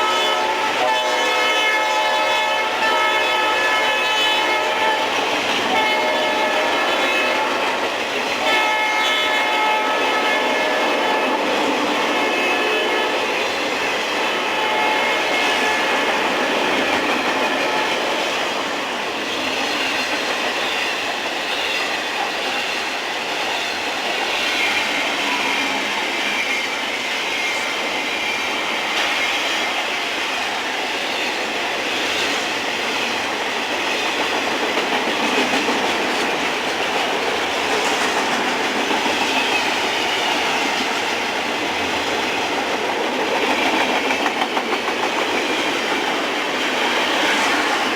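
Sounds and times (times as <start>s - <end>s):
railroad cars rumbling: 0.0s - 47.9s
wheels clicking over rail joints: 33.2s - 47.9s.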